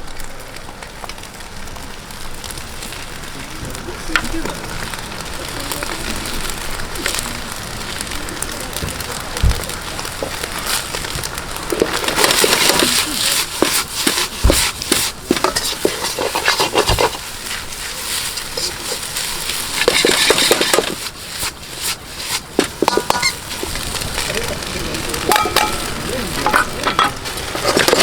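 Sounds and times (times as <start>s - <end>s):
rice sizzling in a wok: 0.0s - 28.0s
ladle scraping and clanking: 9.6s - 28.0s.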